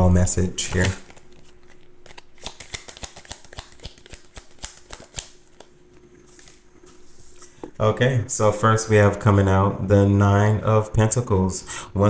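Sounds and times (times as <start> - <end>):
cards being shuffled: 0.4 - 7.4.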